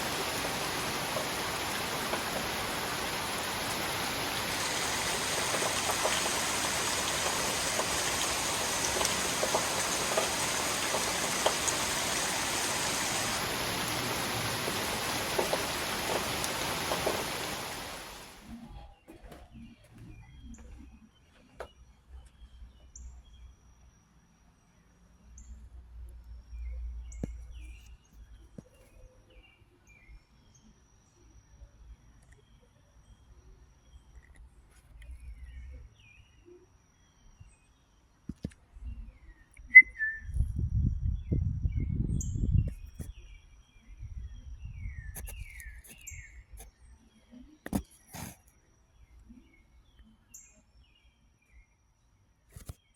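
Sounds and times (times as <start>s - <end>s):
small birds chirping: 0.0s - 18.2s
low outdoor rumble: 0.0s - 18.6s.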